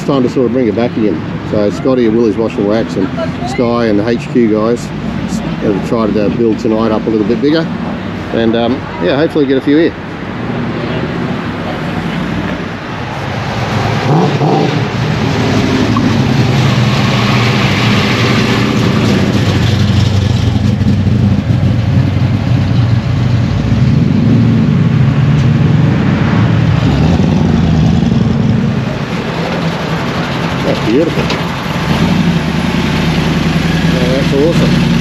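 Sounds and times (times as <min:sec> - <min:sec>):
car engine revving: 0:10.1 - 0:35.0.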